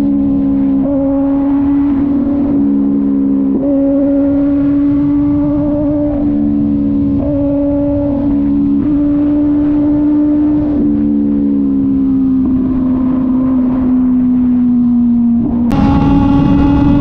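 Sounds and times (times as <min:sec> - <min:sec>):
motorcycle engine cruising: 0:00.0 - 0:17.0
wind and road noise: 0:00.0 - 0:17.0.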